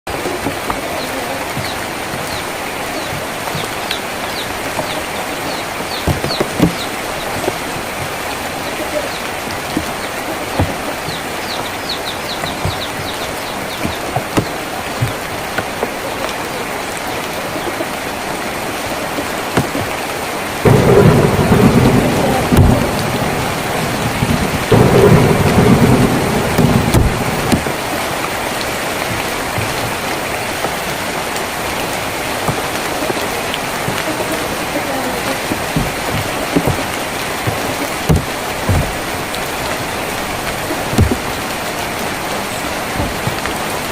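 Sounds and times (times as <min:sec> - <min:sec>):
rain on a tin roof: 0:00.1 - 0:43.9
thunder rumbling: 0:20.5 - 0:43.9.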